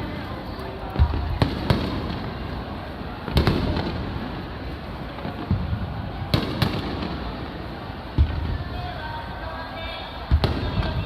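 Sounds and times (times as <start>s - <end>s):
firework shells booming: 0.9s - 4.5s, 5.1s - 8.7s.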